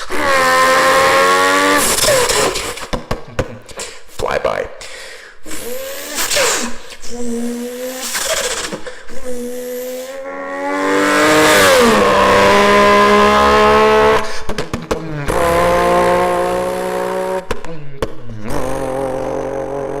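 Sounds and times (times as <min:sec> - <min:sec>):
person imitating car with voice: 0:00.0 - 0:04.8, 0:05.4 - 0:12.2, 0:14.2 - 0:16.7, 0:17.5 - 0:20.0.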